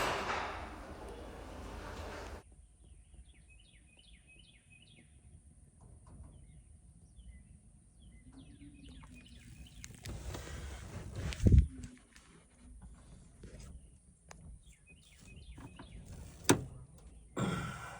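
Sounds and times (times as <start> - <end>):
small birds chirping: 0.9 - 5.5, 6.2 - 11.2, 13.0 - 17.8
wind on microphone: 9.7 - 11.9.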